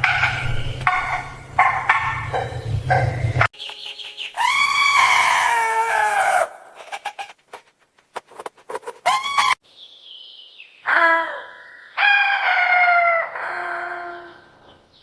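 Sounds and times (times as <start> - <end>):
chickens clucking: 0.0 - 4.5.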